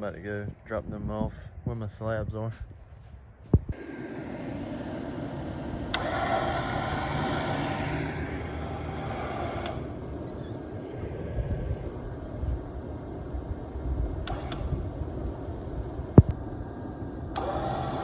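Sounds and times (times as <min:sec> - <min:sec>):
vehicle engine and road rumble: 0:00.0 - 0:18.0
rush of noise: 0:03.8 - 0:17.4.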